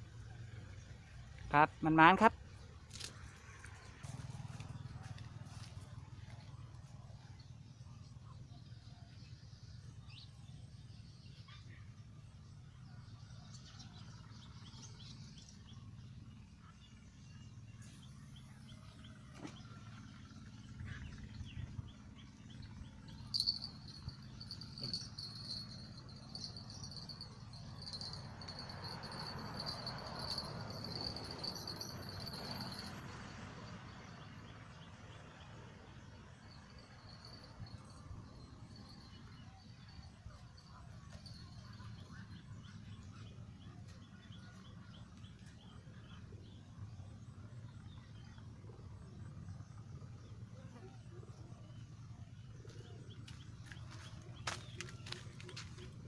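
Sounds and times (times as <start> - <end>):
small birds chirping: 14.4 - 33.1
steady low rumble: 20.3 - 32.7
insects trilling: 23.0 - 32.8.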